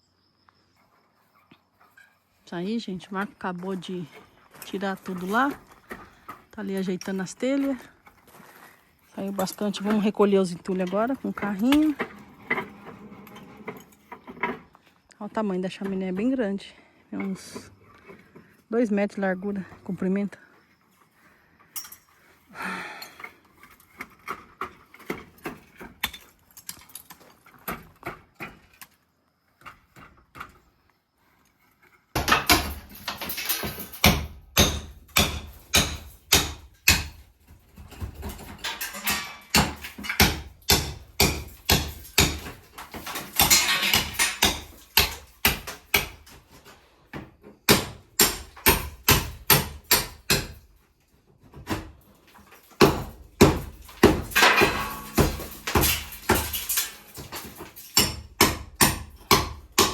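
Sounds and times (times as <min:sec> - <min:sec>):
debris rattling: 0:03.8 - 0:14.8, 0:32.1 - 0:46.5, 0:51.7 - 0:59.9
demolition knocks and clatters: 0:32.1 - 0:46.6, 0:51.4 - 0:59.9.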